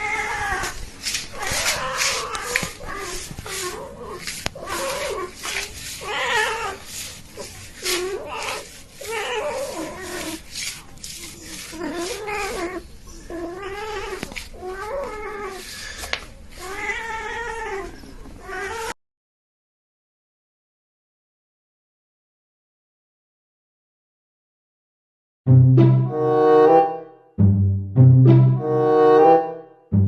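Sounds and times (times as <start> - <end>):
cat yowling: 0.0 - 16.0, 16.6 - 19.0.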